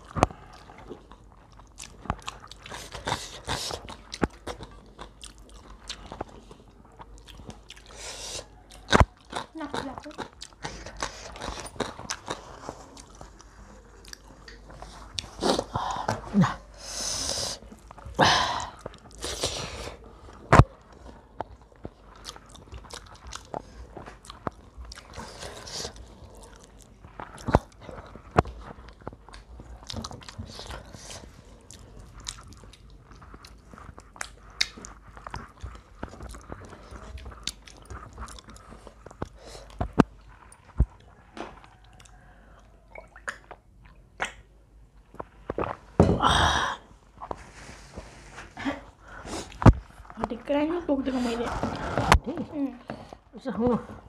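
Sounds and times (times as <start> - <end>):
chewing crispy fried chicken: 0.0 - 45.9
mouth clicks and smacks: 42.9 - 45.8.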